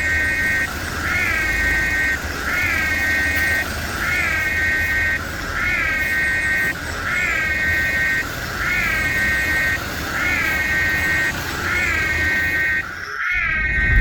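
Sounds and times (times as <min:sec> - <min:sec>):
electronic warning tone: 0:00.0 - 0:14.0
low rumble: 0:13.3 - 0:14.0.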